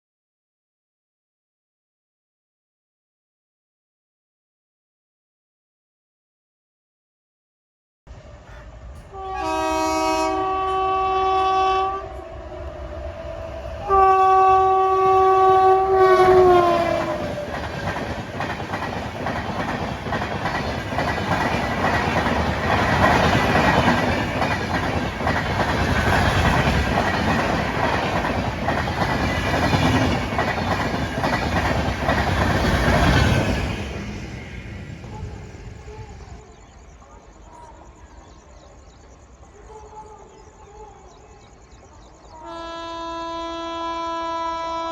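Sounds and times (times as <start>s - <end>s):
train rumbling: 8.1s - 44.9s
train horn blasts: 8.5s - 12.8s, 13.4s - 17.3s, 42.4s - 44.9s.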